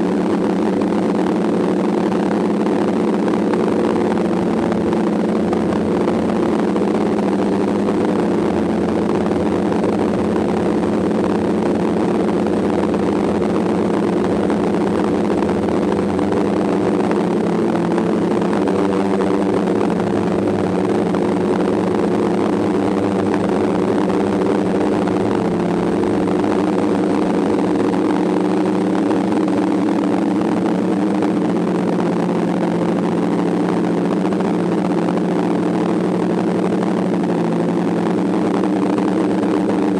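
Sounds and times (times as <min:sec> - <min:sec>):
drone propellers buzzing: 0:00.0 - 0:39.9.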